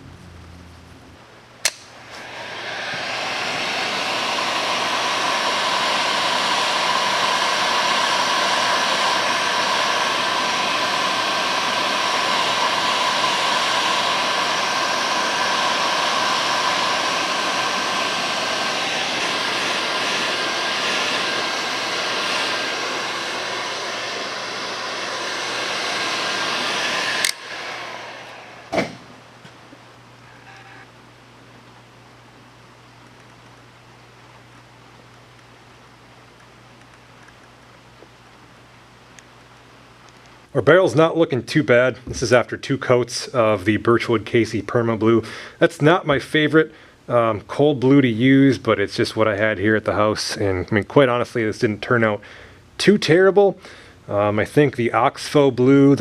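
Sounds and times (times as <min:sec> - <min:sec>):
electric blower whirring: 0:00.0 - 0:30.9
blower switch click: 0:01.6 - 0:02.2, 0:27.2 - 0:27.6.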